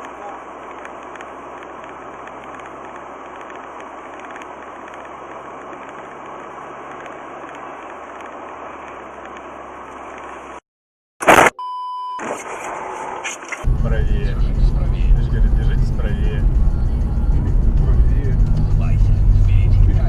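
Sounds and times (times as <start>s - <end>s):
vehicle engine and road noise: 0.0s - 10.6s, 12.2s - 20.0s.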